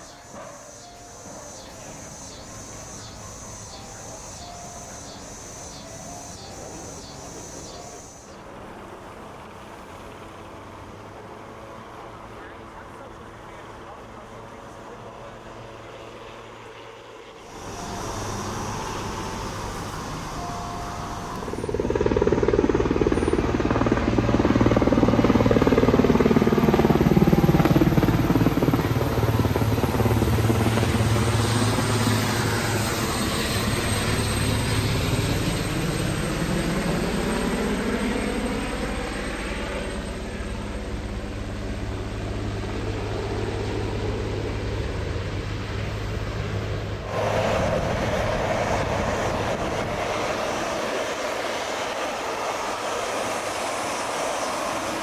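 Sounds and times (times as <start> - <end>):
helicopter rotor beat: 0.0 - 55.0.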